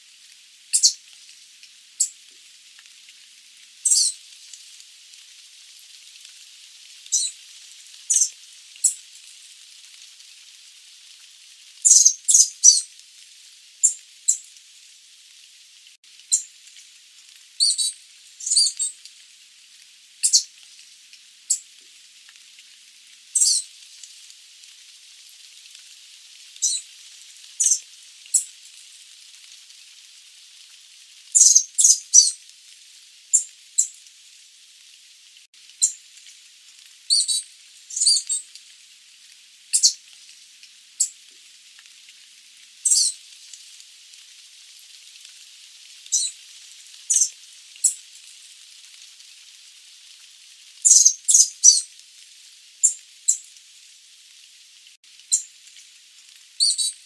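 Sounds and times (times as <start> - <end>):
faint steady hiss: 0.0 - 57.0
bird giving sharp high calls: 11.9 - 12.8, 31.4 - 32.3, 50.9 - 51.8.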